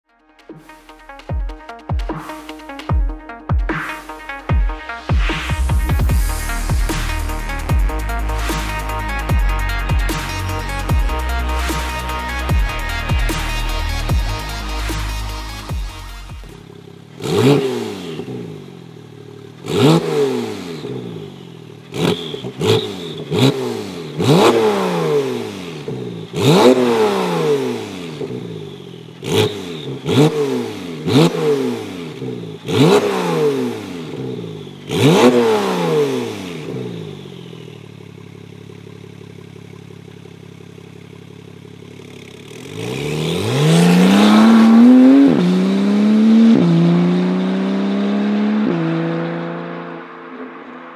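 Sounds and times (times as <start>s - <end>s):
exhaust cracks: 0.3s - 20.0s
car engine revving: 0.6s - 50.9s
car engine idling: 4.3s - 19.9s, 36.3s - 46.4s.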